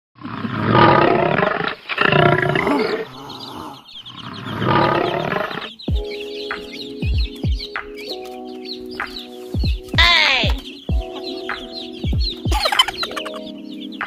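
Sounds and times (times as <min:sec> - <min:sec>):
lion roaring: 0:00.2 - 0:05.7
chick chirping: 0:01.6 - 0:14.0
music with tones and low booms: 0:04.4 - 0:14.0.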